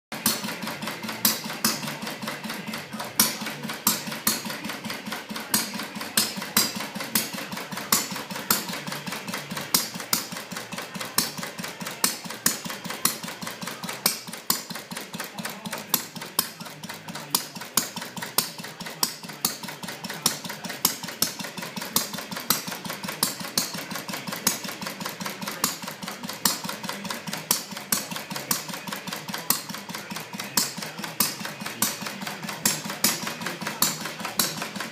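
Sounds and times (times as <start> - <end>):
model engine ticking: 0.1 - 34.9.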